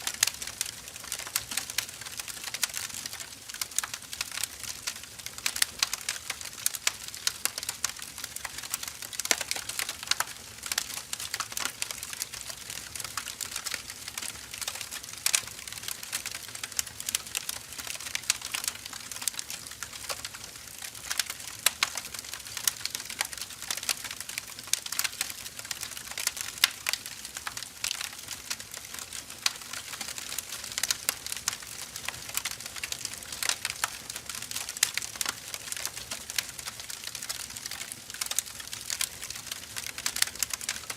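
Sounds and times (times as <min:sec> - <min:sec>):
fire crackling and popping: 0:00.0 - 0:40.9.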